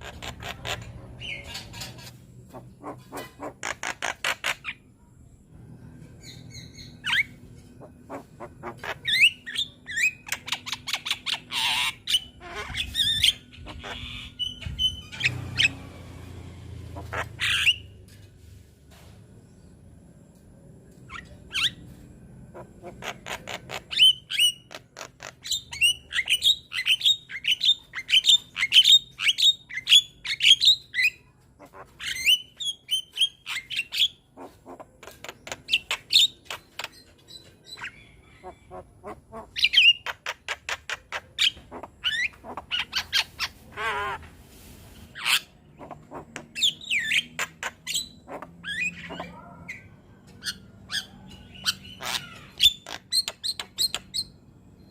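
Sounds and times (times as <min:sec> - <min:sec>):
bird singing: 0:00.0 - 0:15.9.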